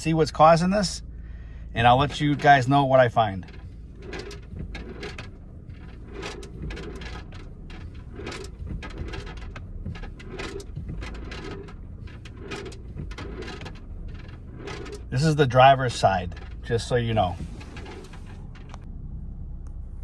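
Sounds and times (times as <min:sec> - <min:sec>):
car interior low rumble: 0:00.0 - 0:20.0
loose objects rolling clatter: 0:01.8 - 0:18.8
knocks and clicks: 0:03.4 - 0:15.2.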